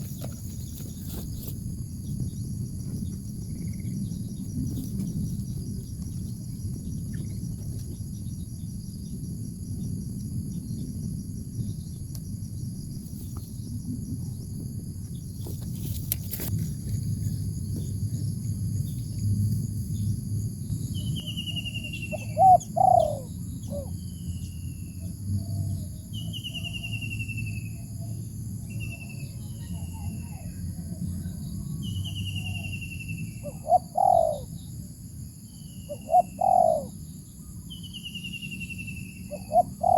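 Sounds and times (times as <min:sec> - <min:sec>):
low steady rumble: 0:00.0 - 0:33.7
insects chirring: 0:00.0 - 0:39.9.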